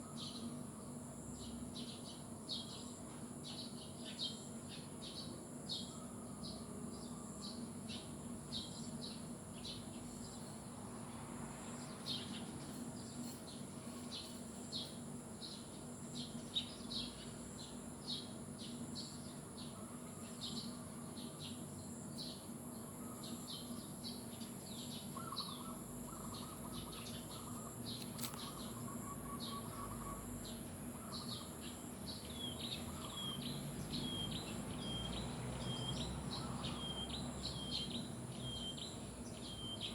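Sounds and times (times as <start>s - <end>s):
birds chirping: 11.7s - 39.9s
bird trill: 23.0s - 39.9s.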